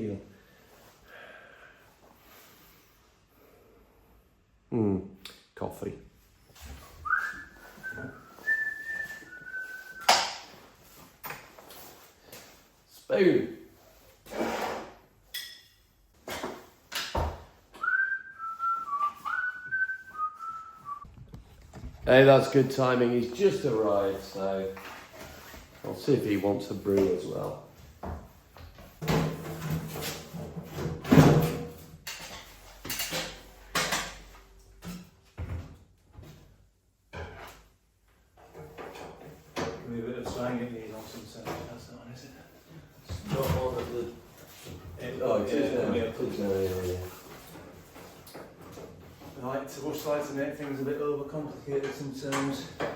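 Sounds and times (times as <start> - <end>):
person whistling a tune: 7.0 - 10.2, 17.8 - 21.1
knocks and bumps: 21.0 - 22.4.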